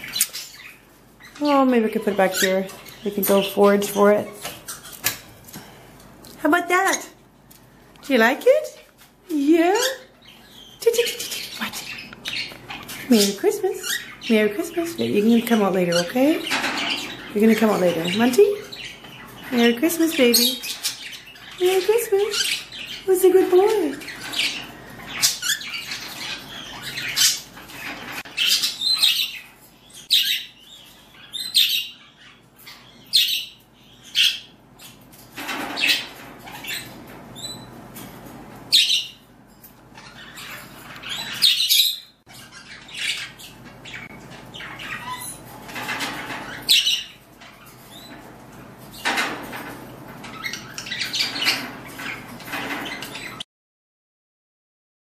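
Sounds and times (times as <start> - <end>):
cockatiels chirping and squawking: 0.0 - 5.3, 9.7 - 53.4.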